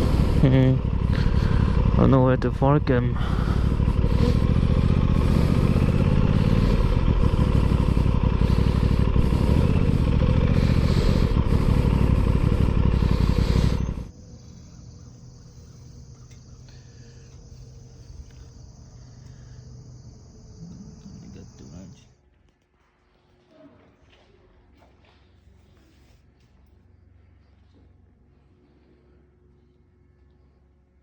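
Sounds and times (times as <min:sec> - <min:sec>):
motorcycle engine running: 0:00.0 - 0:21.9
crickets chirring: 0:00.0 - 0:22.2.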